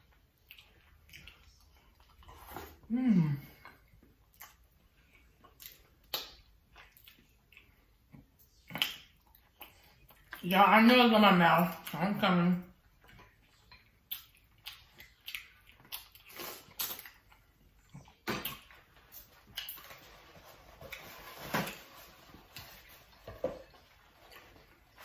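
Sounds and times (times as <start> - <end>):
chewing and wet smacks: 0.0 - 2.9, 3.6 - 10.6, 12.6 - 20.0.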